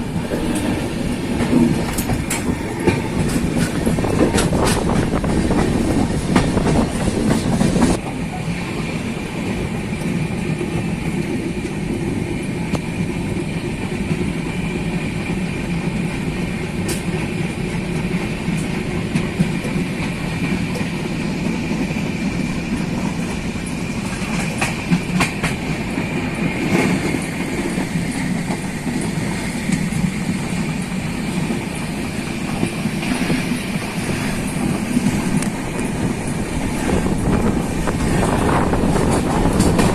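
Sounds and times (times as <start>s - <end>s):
wheels clacking over rail joints: 0.0s - 8.5s, 22.6s - 39.9s
train rumble: 0.0s - 39.9s.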